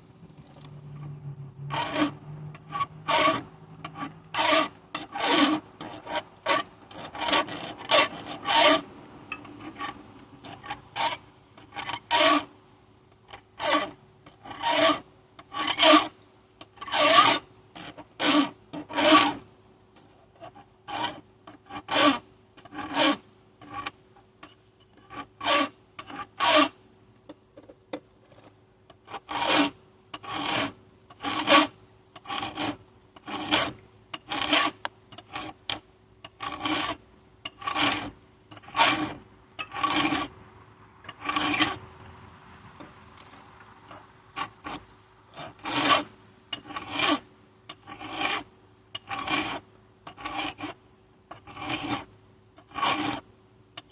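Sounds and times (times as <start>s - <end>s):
file rasping on chainsaw chain: 1.7s - 8.9s, 9.5s - 12.5s, 13.3s - 19.4s, 20.4s - 24.0s, 25.0s - 26.8s, 29.0s - 40.3s, 41.1s - 41.8s, 44.4s - 53.2s.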